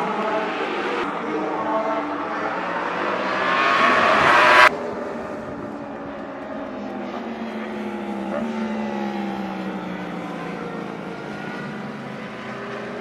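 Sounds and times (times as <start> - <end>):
superbike engine at high revs: 0.0 - 13.0.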